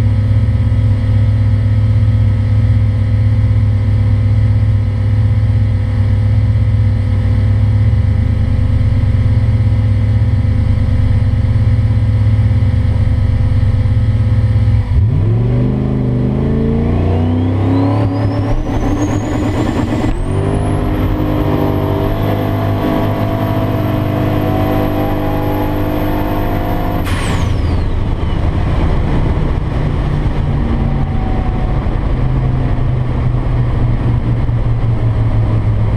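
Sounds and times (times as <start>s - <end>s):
car engine revving: 12.6s - 35.9s
turbo whistle: 17.1s - 20.9s
gear change: 17.1s - 32.9s.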